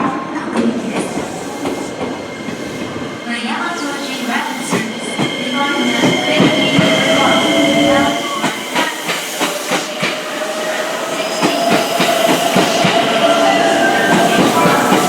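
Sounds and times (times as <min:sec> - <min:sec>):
train motor whine: 0:00.8 - 0:15.0
train wheels clicking over rail joints: 0:00.8 - 0:15.0.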